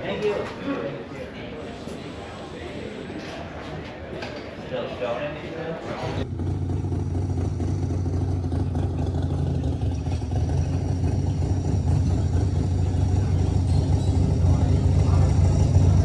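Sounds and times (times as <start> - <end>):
engine rumbling: 6.0 - 16.0.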